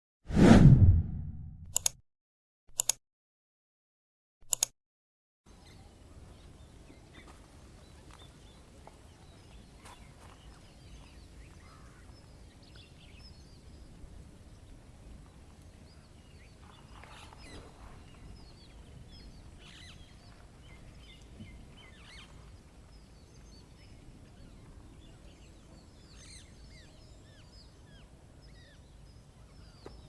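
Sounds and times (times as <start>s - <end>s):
whoosh: 0.3s - 1.8s
bird chirps: 15.9s - 30.0s.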